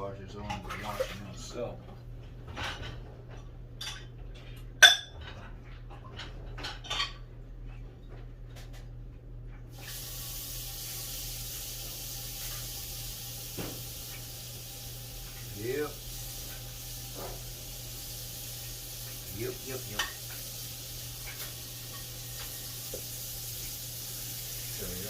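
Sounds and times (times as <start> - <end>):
tap water running: 0.3 - 2.0, 9.7 - 25.0
dishes clinking at sink: 2.5 - 7.3, 19.7 - 20.4.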